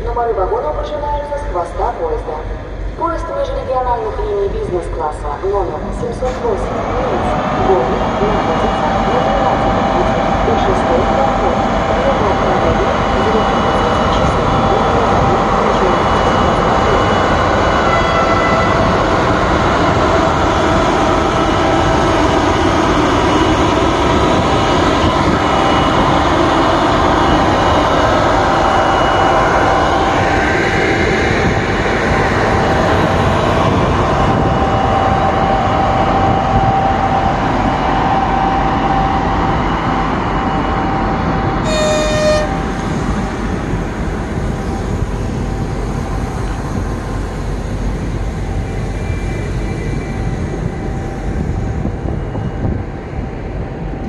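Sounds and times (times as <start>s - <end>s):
train rumbling on track: 0.0s - 54.0s
train horn toot: 17.8s - 19.0s, 41.6s - 43.0s
high-pitched wheel squeals: 41.6s - 42.8s.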